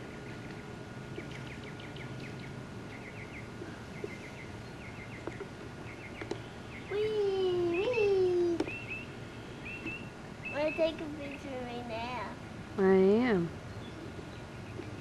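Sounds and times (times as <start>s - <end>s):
songbird chirping: 0.0s - 15.0s
steady faint hum: 0.0s - 15.0s.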